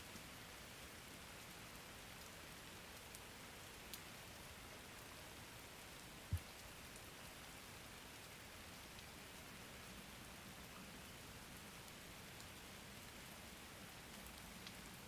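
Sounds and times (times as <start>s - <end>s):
faint rain on a surface: 0.0s - 15.0s.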